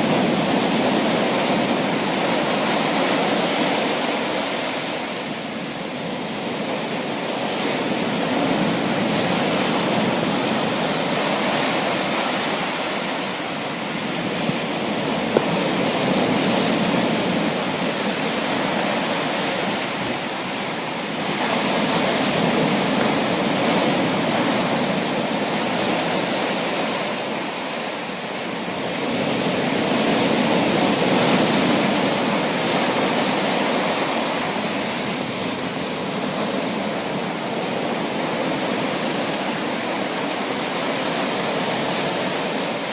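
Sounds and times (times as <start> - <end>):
sea waves: 0.0 - 42.9.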